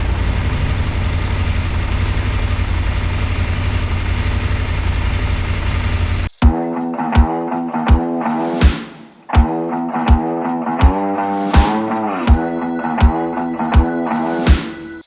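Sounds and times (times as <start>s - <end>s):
guitar music: 6.4s - 15.0s.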